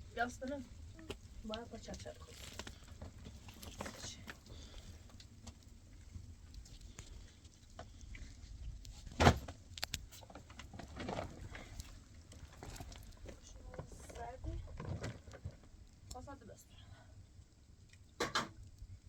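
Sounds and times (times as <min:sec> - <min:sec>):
low steady rumble: 0:00.0 - 0:19.0
small clicks and knocks: 0:09.3 - 0:16.2.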